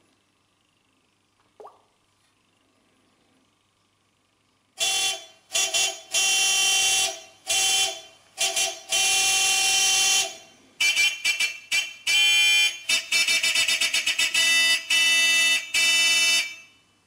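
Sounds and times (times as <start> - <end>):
vehicle air horn blasts: 4.8 - 16.8.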